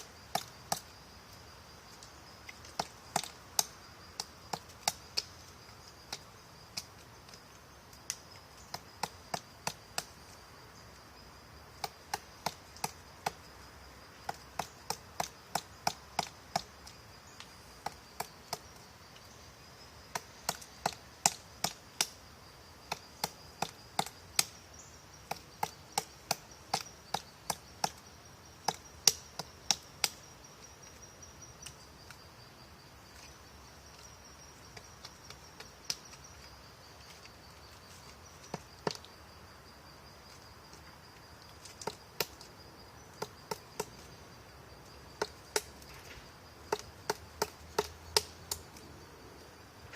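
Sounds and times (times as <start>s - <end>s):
woodpecker pecking at wood: 8.1s - 10.2s, 11.8s - 13.4s, 14.2s - 17.0s, 20.1s - 22.2s, 22.8s - 28.0s, 45.1s - 45.8s, 46.6s - 48.7s.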